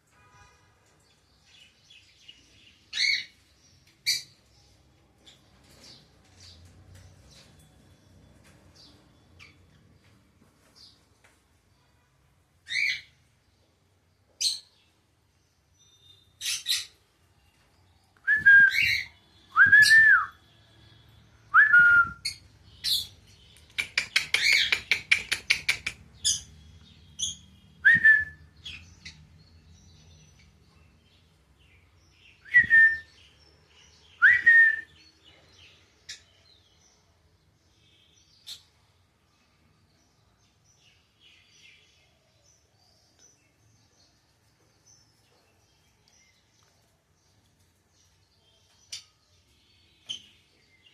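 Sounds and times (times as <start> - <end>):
lovebirds chirping shrilly: 15.8 - 17.0, 18.4 - 30.5.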